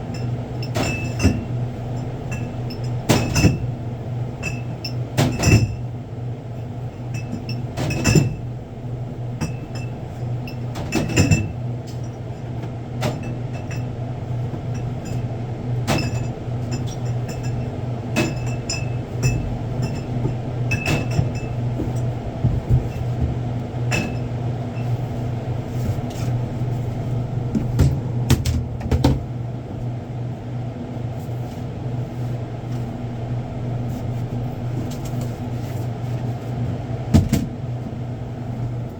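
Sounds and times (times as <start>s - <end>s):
low electrical hum: 0.0s - 38.9s
boxes knocking on shelves: 20.9s - 23.5s, 27.6s - 29.3s, 37.1s - 37.5s.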